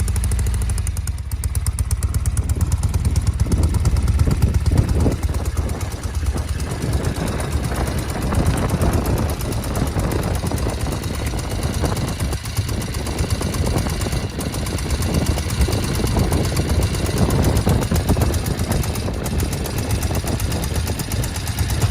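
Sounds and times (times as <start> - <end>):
motorcycle engine idling: 0.0 - 21.9.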